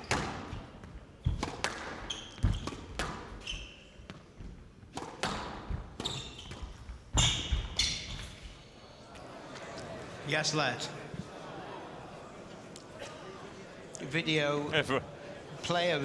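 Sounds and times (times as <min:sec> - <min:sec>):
shoes squeaking on court floor: 0:00.0 - 0:10.1
squash ball struck by rackets: 0:00.1 - 0:03.4, 0:04.1 - 0:08.3.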